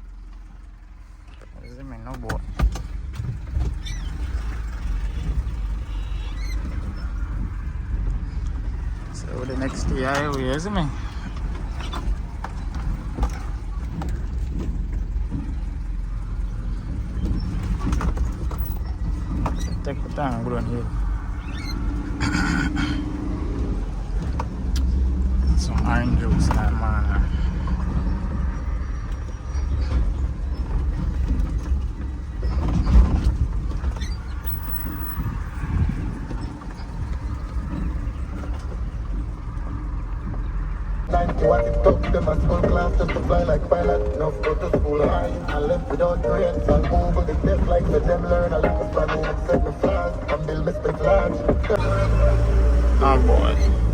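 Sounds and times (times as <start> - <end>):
truck engine and road rumble: 0.0 - 53.9
cab creaks and knocks: 1.3 - 41.4.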